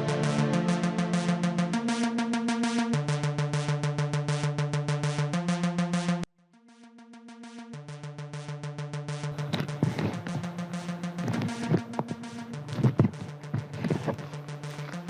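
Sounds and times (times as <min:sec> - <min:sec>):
synthesizer chords: 0:00.0 - 0:15.0
drum machine pulse: 0:07.7 - 0:15.0.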